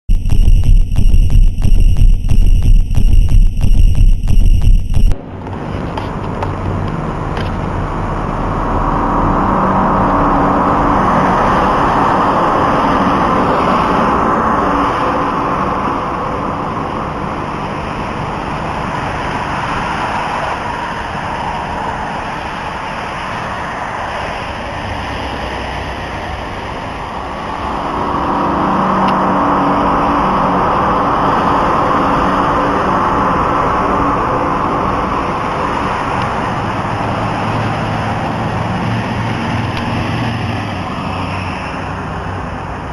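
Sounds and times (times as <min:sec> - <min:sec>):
loud rumbling drone: 0:00.0 - 0:42.9
low hum: 0:00.0 - 0:42.9.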